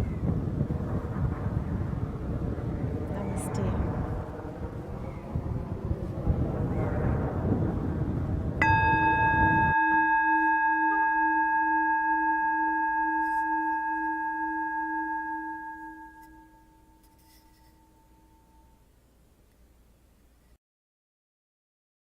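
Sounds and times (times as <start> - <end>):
singing bowl ringing: 8.6 - 18.9.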